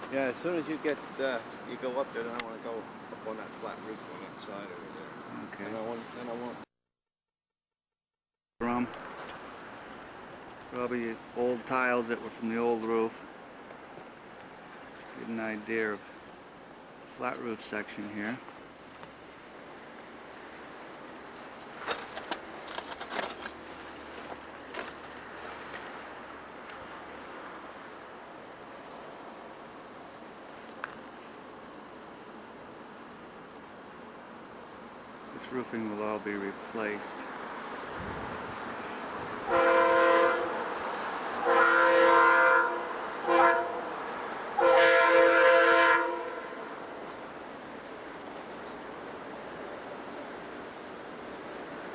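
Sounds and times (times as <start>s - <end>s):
steady outdoor noise: 0.0s - 6.7s, 8.6s - 51.9s
sharp clicks and scrapes: 21.0s - 23.6s
locomotive air horn blasts: 39.4s - 40.7s, 41.4s - 44.0s, 44.6s - 46.7s.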